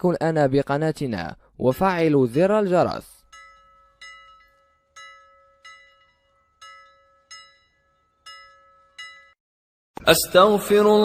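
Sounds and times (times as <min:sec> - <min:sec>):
slow bell-like chime tune: 0:03.3 - 0:09.4.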